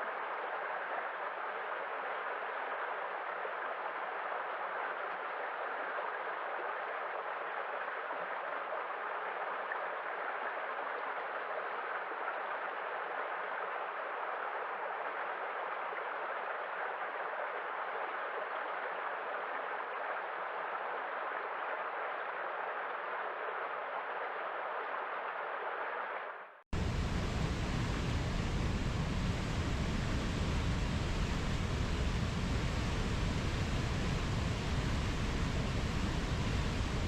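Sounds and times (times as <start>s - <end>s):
rushing water waves: 26.8s - 37.0s.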